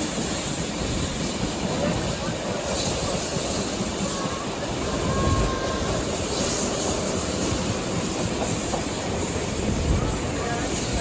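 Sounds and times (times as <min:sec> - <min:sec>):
train rumbling and rattling on track: 0:00.0 - 0:11.0.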